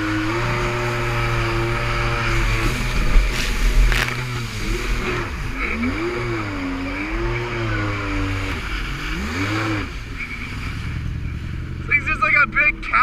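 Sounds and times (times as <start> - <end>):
jet ski engine revving: 0.0 - 13.0.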